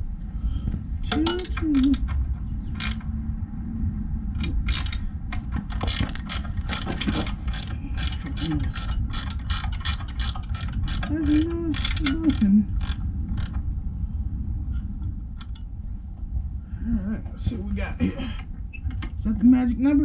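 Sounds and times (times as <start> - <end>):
ratchet wrench clicking: 1.1 - 3.1, 4.4 - 13.7, 15.4 - 15.6.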